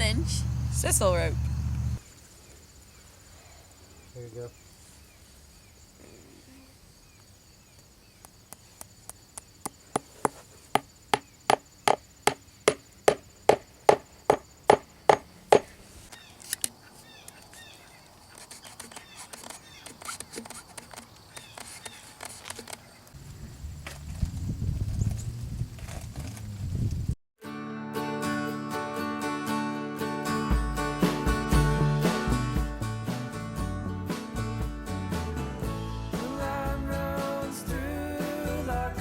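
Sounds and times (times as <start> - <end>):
scraping and rustling: 15.6 - 23.2.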